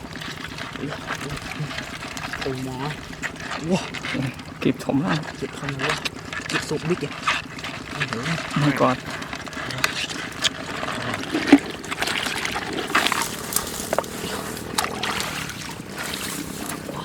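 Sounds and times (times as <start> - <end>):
shallow water splashing: 0.0 - 17.0.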